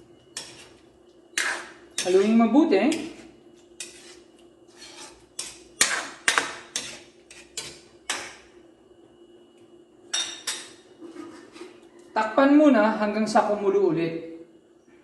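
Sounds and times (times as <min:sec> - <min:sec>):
spoon scraping a pot: 0:00.3 - 0:08.4, 0:10.2 - 0:11.8.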